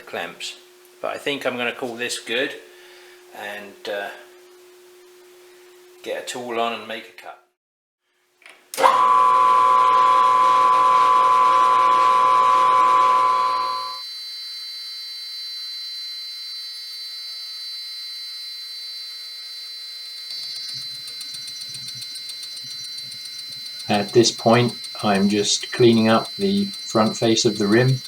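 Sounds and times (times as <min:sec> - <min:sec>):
metal lathe whining: 0:08.8 - 0:14.0, 0:20.3 - 0:28.0.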